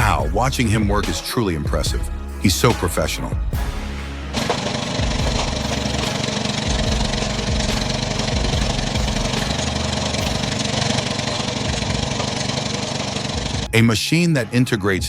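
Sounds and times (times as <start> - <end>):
machinery engine running: 4.3 - 13.8.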